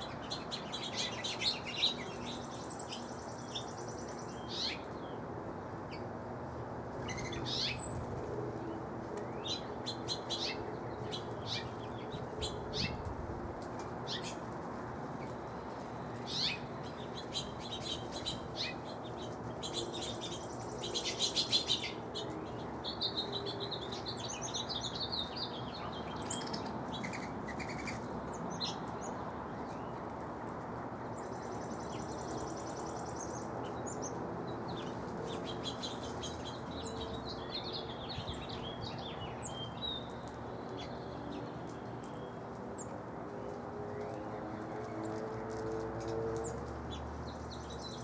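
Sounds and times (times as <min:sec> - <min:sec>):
birds chirping and singing: 0:00.0 - 0:05.1, 0:07.0 - 0:08.1, 0:15.2 - 0:30.0, 0:31.1 - 0:42.9.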